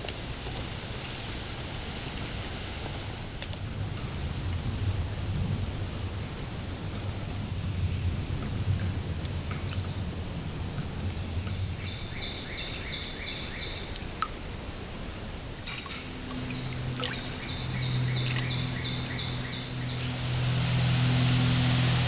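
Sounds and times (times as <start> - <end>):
low hum: 3.5 - 22.0
songbird chirping: 11.3 - 22.0.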